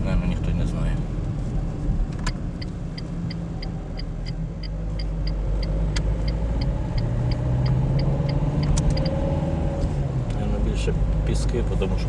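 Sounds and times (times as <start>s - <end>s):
car engine and tyre rumble: 0.0s - 12.0s
turn signal ticking: 2.0s - 10.4s.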